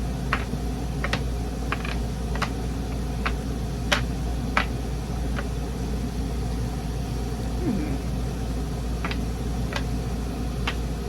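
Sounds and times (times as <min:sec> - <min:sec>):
steady low hum: 0:00.0 - 0:11.0
wooden pegs clicking on board: 0:00.3 - 0:05.6, 0:09.0 - 0:11.0.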